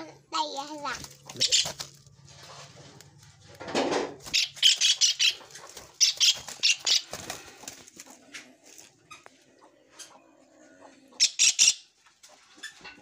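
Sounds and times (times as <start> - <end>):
bird wings rustling: 0.8 - 9.0.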